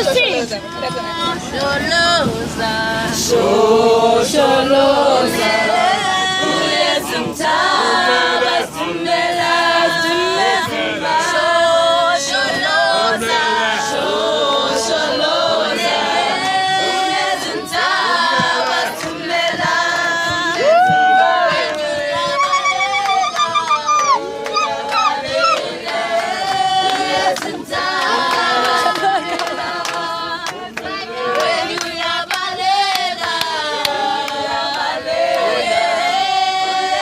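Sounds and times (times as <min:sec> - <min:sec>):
vocal group singing a cappella: 0:00.0 - 0:37.0.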